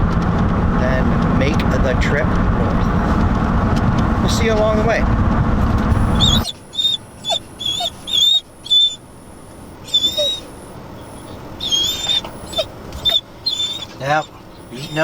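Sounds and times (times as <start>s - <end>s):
vehicle road noise: 0.0s - 15.0s
dog whining: 5.9s - 15.0s.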